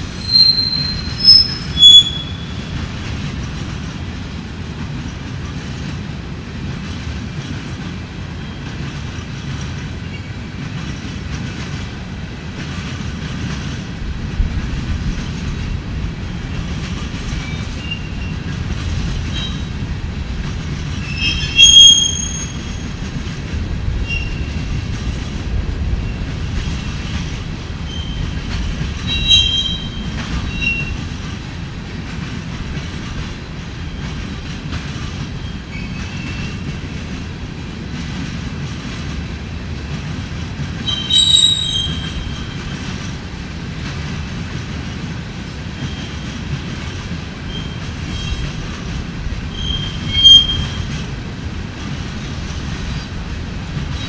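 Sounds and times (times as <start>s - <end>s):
freight train wheels rumbling: 0.0s - 54.0s
high-pitched wheel squeals: 0.1s - 2.7s, 21.0s - 22.9s, 29.0s - 31.0s, 40.8s - 42.8s, 49.5s - 50.9s.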